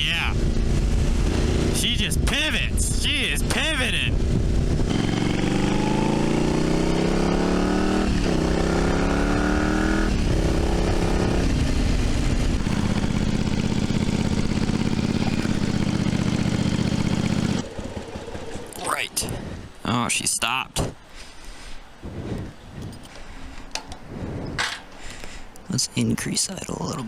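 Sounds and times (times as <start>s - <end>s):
motorcycle accelerating through gears: 0.0s - 18.8s
motorcycle idling: 0.0s - 19.3s.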